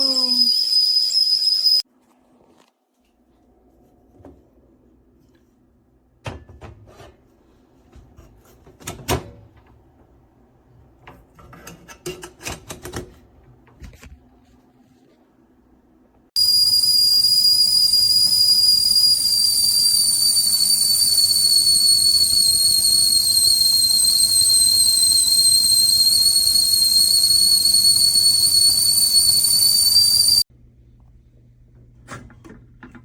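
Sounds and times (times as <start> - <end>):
kettle whistling: 0.0 - 1.8, 16.4 - 30.5.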